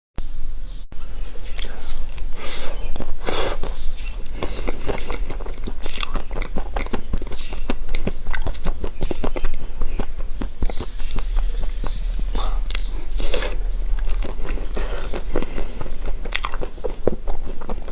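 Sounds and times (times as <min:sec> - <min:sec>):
person biting and chewing food: 0:01.2 - 0:11.3, 0:15.0 - 0:17.9.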